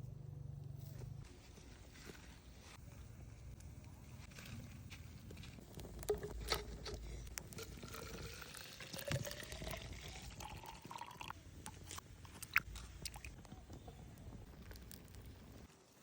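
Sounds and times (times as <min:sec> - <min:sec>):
liquid pouring into container: 0:07.5 - 0:11.8.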